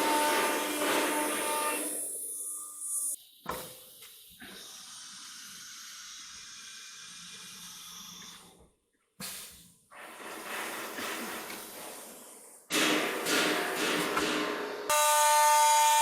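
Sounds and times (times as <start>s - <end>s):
cnc router hissing: 0.0s - 3.2s, 14.9s - 16.0s.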